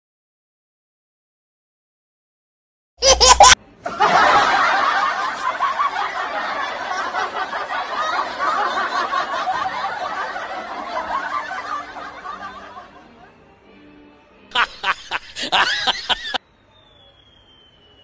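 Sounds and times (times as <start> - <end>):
many people laughing: 3.0 - 13.4, 14.5 - 16.4.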